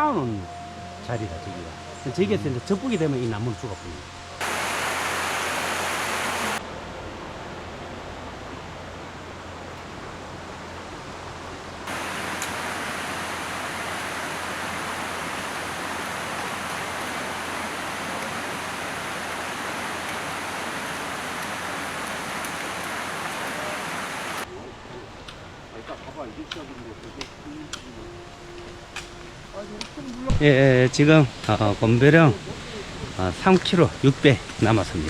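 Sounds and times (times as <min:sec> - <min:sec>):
stream water rushing: 0:04.1 - 0:06.8, 0:08.6 - 0:24.5.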